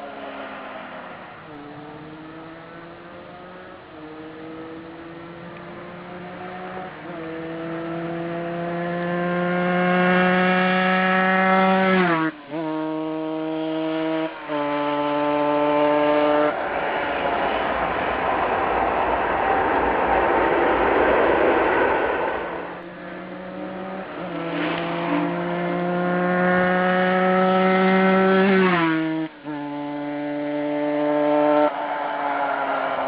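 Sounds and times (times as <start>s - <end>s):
motorcycle engine accelerating: 1.5s - 31.7s
loud rushing noise: 14.3s - 26.2s, 31.3s - 33.0s.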